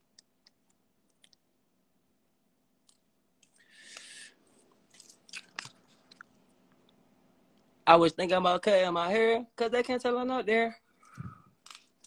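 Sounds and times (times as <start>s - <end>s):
soft hiss: 0.0s - 7.9s.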